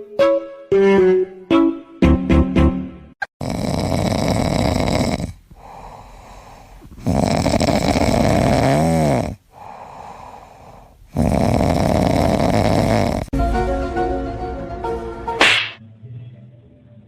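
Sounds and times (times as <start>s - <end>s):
music cue: 0.0s - 3.2s, 13.4s - 16.8s
pet snoring loudly: 3.4s - 13.3s.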